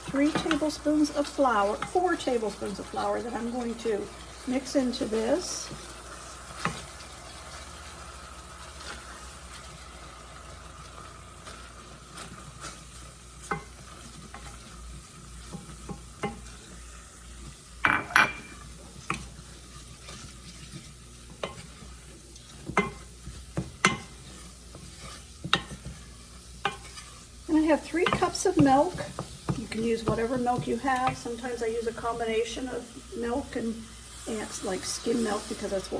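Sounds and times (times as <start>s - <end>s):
light sizzle: 0.0s - 35.9s
whisk stirring in a skillet: 0.0s - 35.9s
whisk tapping against pan: 13.4s - 16.7s, 17.8s - 31.5s.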